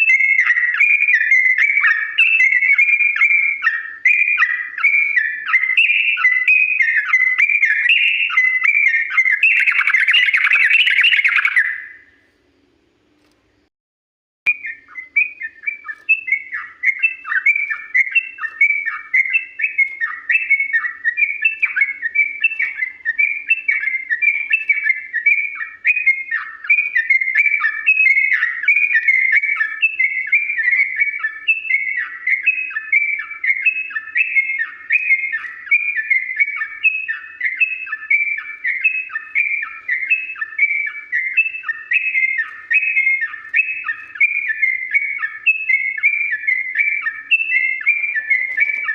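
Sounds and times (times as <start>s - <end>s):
bird chirping song: 0.0s - 13.7s, 14.5s - 48.9s.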